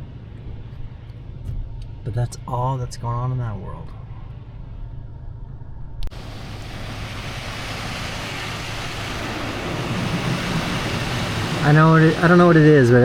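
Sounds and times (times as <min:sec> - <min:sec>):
low vehicle rumble: 0:00.0 - 0:13.0
rushing hiss: 0:06.1 - 0:13.0.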